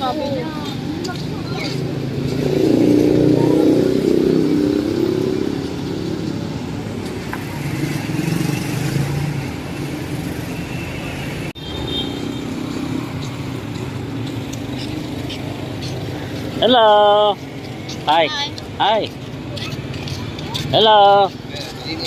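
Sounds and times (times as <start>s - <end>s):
vehicle engine passing: 0.0s - 11.6s
street hum: 0.0s - 22.0s.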